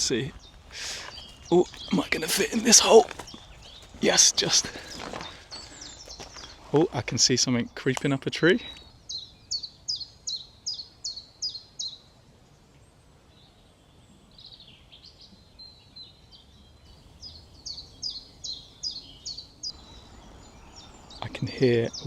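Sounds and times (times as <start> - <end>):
chiffchaff singing: 0.0 - 6.2.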